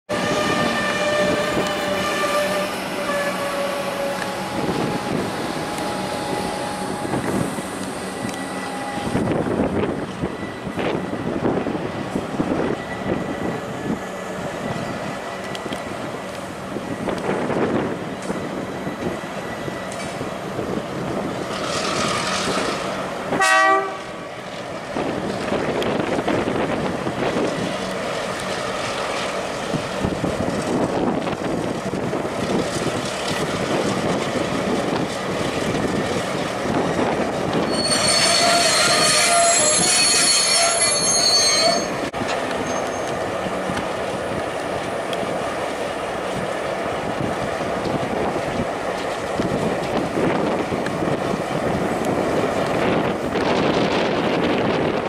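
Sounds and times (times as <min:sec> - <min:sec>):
high-pitched wheel squeal: 0:00.1 - 0:05.2, 0:37.6 - 0:43.2
train horn toot: 0:00.1 - 0:07.4, 0:23.3 - 0:24.2, 0:37.6 - 0:42.0
freight train rumbling past: 0:00.1 - 0:55.0.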